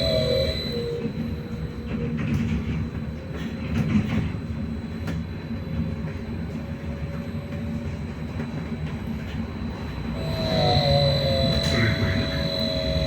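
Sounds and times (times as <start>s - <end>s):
faint electric whine: 0.0s - 1.0s, 10.1s - 13.0s
trolleybus cabin rumble: 0.0s - 13.0s.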